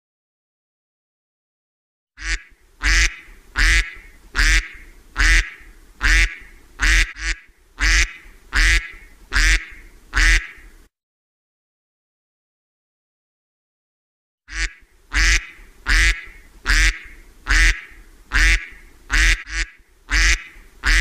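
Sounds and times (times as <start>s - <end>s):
duck quacking: 2.2s - 10.7s, 14.5s - 21.0s.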